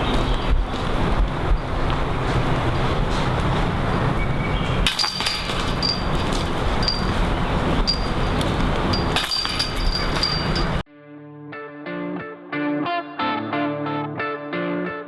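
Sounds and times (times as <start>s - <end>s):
wind rumbling on microphone: 0.0s - 10.8s.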